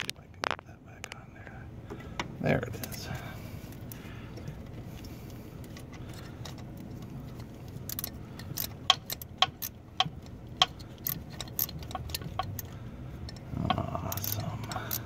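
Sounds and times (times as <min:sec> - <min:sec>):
ratchet clicking: 0:03.8 - 0:15.0.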